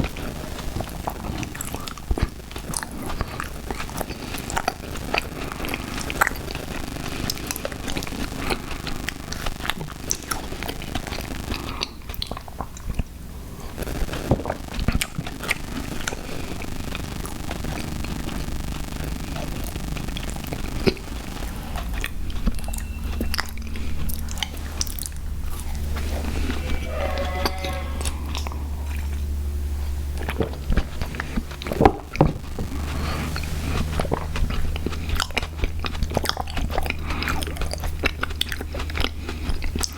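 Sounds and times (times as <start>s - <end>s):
chewing and biting gummy cereal: 0.0s - 39.9s
wet mouth clicks: 30.2s - 39.9s.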